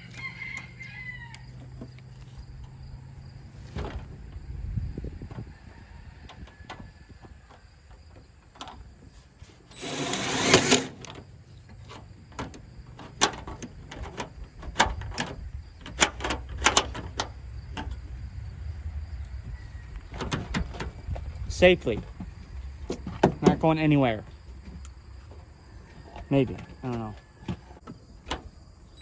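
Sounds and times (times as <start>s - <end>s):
metal deadbolts clicking and clanking: 9.8s - 18.0s.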